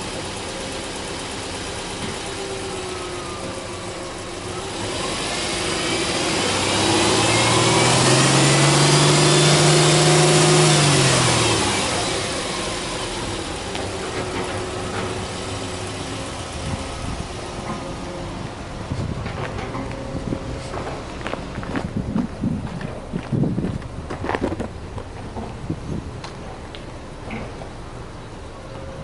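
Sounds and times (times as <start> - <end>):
car engine revving: 0.0 - 22.6.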